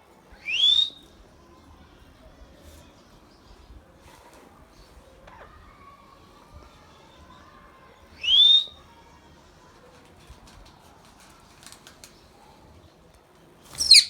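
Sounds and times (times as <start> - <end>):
parrot whistling call: 0.5 - 1.0, 8.2 - 8.7.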